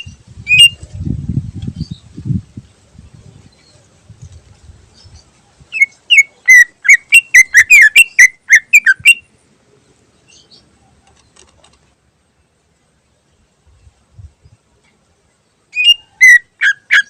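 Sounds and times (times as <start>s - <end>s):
bird singing whistled notes: 0.0s - 1.0s, 4.9s - 9.3s, 15.7s - 17.0s.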